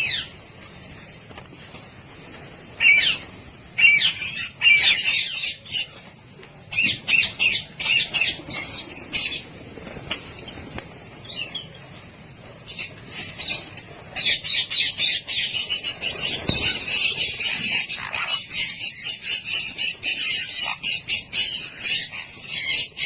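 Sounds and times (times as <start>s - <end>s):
parrots squawking: 2.8s - 6.0s, 6.7s - 9.5s, 12.7s - 23.0s.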